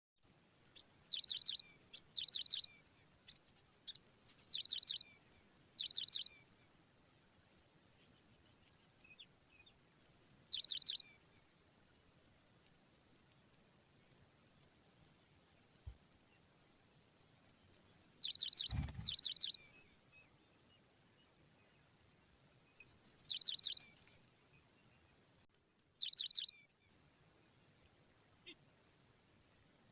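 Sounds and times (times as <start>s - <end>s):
nestlings begging with rapid chirps: 0.7s - 19.8s, 22.7s - 24.3s, 25.6s - 26.5s.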